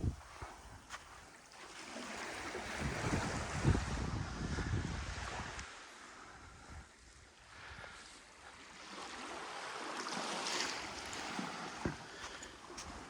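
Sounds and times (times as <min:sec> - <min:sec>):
wind rumbling on microphone: 0:00.0 - 0:01.3, 0:02.4 - 0:08.0.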